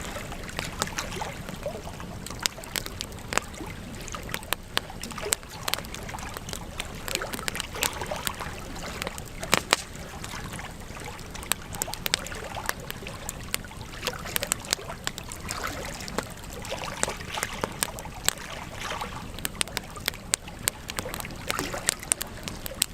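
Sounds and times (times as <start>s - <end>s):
wood fire crackling and popping: 0.0s - 22.9s.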